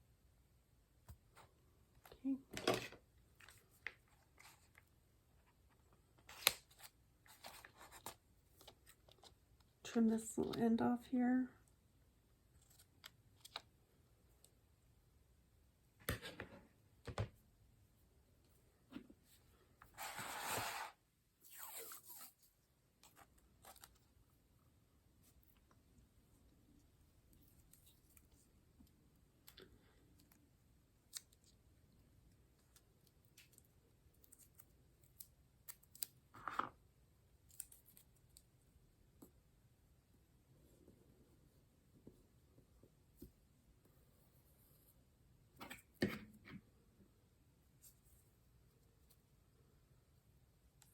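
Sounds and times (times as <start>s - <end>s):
paper scraping: 20.0s - 21.0s.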